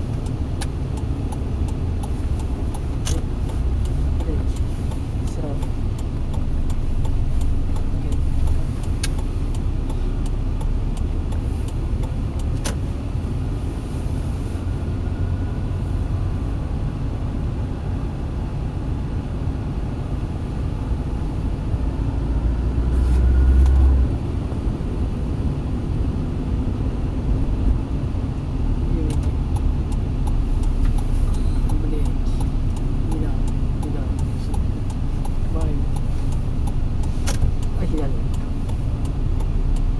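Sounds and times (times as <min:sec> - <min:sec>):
car engine and road noise: 0:00.0 - 0:39.9
sharp clicks: 0:00.1 - 0:12.8, 0:29.0 - 0:39.9.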